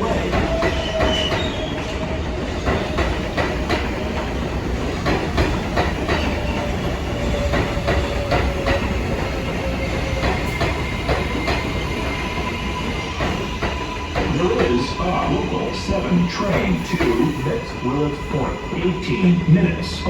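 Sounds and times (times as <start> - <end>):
train wheels clacking over rail joints: 0.0 - 14.9
train rumble: 0.0 - 20.0.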